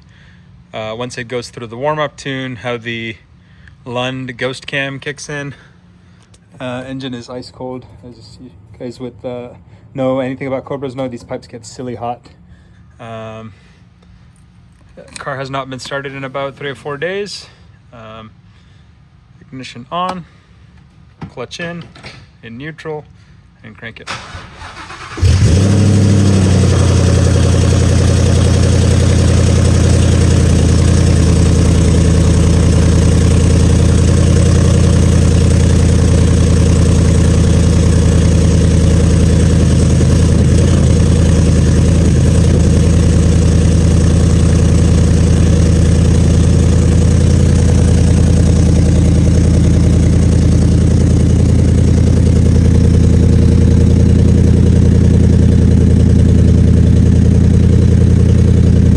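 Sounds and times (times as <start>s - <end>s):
car engine cold start: 24.1s - 58.9s
car engine fast idle: 24.1s - 58.9s.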